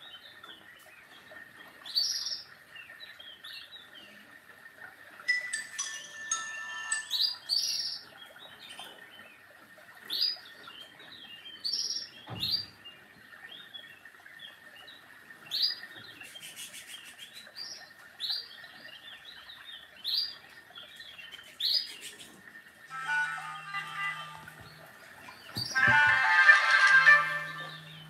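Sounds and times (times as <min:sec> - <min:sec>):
small birds chirping: 0:00.0 - 0:05.8, 0:07.0 - 0:25.9
dull knock: 0:25.5 - 0:26.2.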